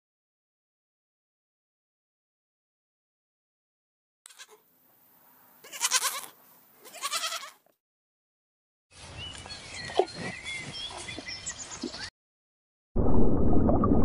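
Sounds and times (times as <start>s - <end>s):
alpaca bleat-like calls: 4.3s - 4.6s, 5.6s - 7.6s
small birds chirping: 9.0s - 12.1s.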